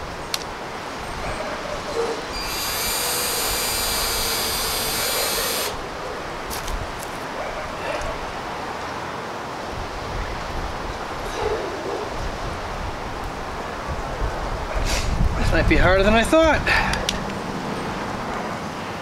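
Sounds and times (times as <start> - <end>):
power drill running: 2.3 - 5.8.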